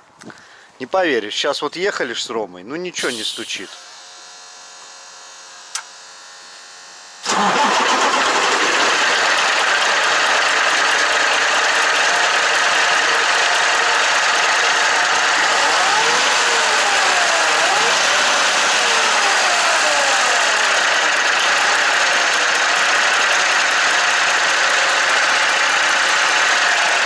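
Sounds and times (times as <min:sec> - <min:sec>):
truck diesel engine running: 0:07.3 - 0:27.0.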